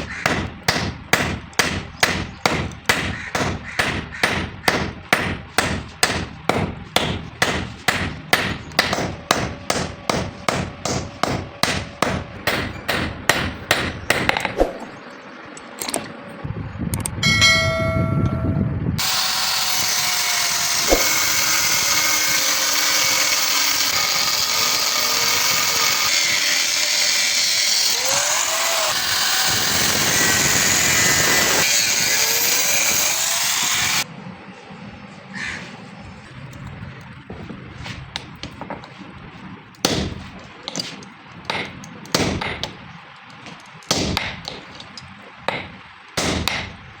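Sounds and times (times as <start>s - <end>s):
hammer blows on hot steel: 17.2s - 20.0s, 20.7s - 22.5s.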